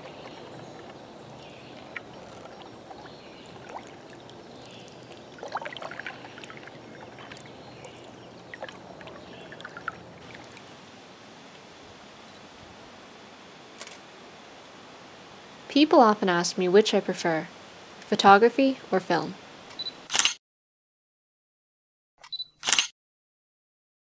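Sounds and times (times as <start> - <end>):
water drips and splashes: 0.0 - 10.8
water lapping against a hull: 0.0 - 10.8.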